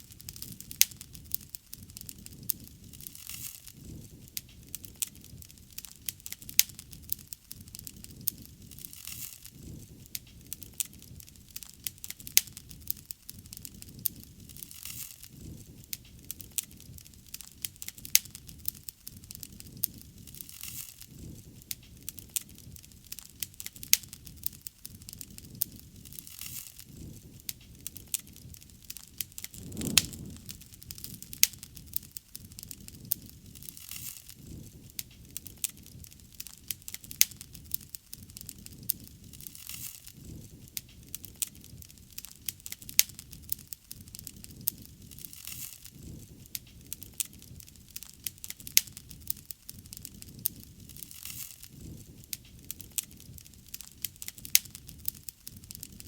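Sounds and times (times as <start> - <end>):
low rumble of flames: 0.0 - 14.7, 15.3 - 20.5, 21.1 - 56.0
bonfire pops and snaps: 0.1 - 56.0
brief hiss: 29.5 - 30.8.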